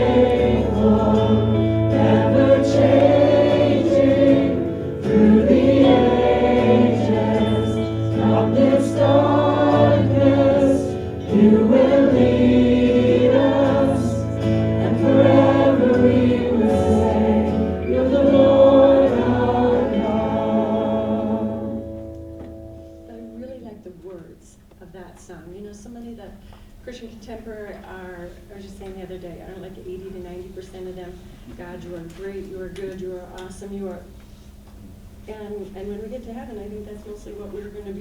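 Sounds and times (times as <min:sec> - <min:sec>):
group singing worship song: 0:00.0 - 0:22.1
instrumental backing: 0:00.0 - 0:24.4.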